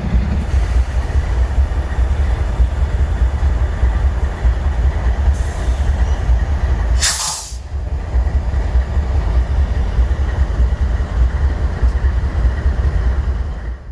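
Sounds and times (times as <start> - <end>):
train low rumble: 0.0 - 13.9
air brakes hissing: 5.3 - 6.2, 7.0 - 7.7.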